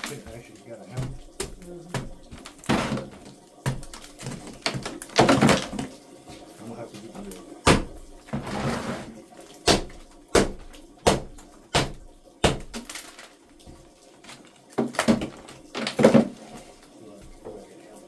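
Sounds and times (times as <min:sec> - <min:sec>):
sharp knocks: 0:01.0 - 0:05.8, 0:07.6 - 0:08.2, 0:09.7 - 0:12.9.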